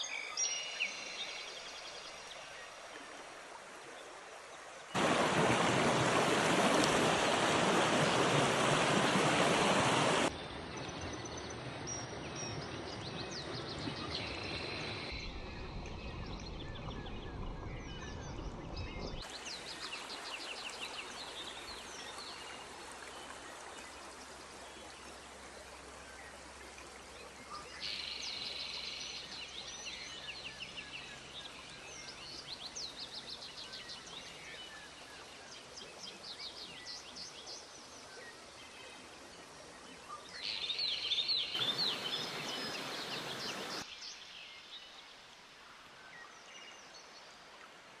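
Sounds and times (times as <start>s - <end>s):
creek flowing: 0.0s - 48.0s
songbirds trilling: 40.4s - 43.8s.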